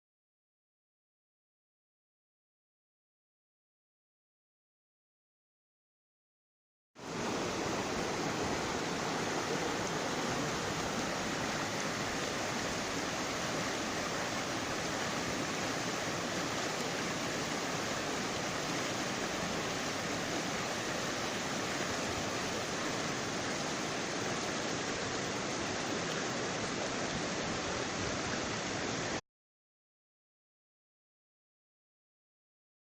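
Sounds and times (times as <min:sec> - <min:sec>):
stream rushing over rocks: 0:07.0 - 0:29.2.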